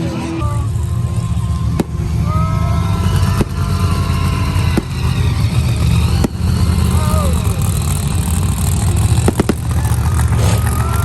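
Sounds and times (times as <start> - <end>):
monster truck engine rumbling: 0.0 - 11.0
sharp pops: 9.2 - 9.8.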